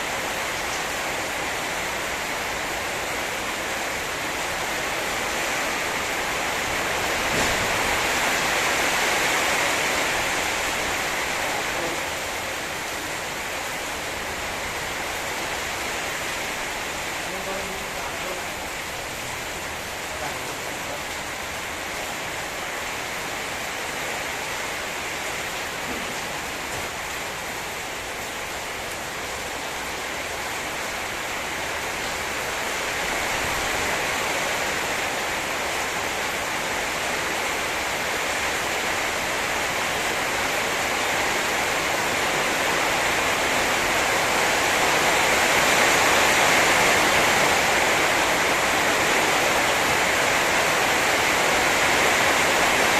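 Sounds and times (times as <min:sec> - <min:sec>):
heavy rain pouring: 0:00.0 - 0:52.9.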